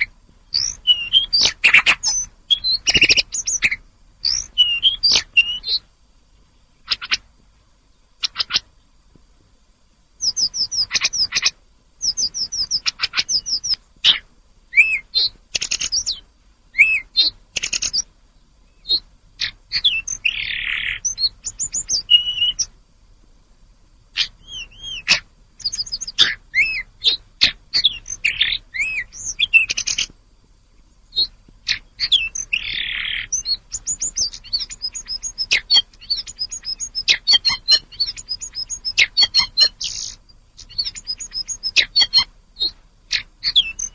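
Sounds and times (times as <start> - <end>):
bird whistling and trilling: 0.0 - 5.8, 8.2 - 8.6, 10.2 - 16.2, 16.8 - 18.0, 18.8 - 22.7, 24.2 - 30.1, 31.1 - 43.9
harsh raspy bird notes: 18.8 - 22.7, 24.1 - 30.1, 31.1 - 43.9.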